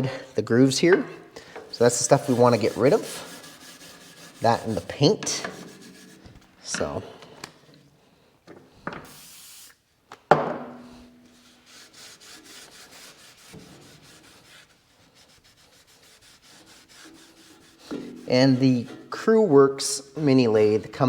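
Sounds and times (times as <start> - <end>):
brush scrubbing metal: 1.6 - 7.0, 11.4 - 19.5
short hiss: 9.1 - 9.9.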